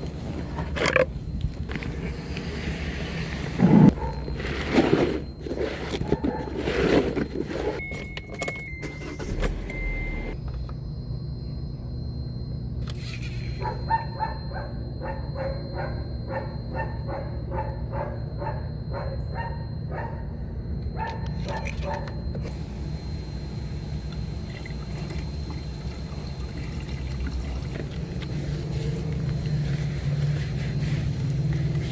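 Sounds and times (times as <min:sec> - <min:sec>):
car engine cranking: 0:07.8 - 0:10.4
dashboard warning chime: 0:07.8 - 0:31.9.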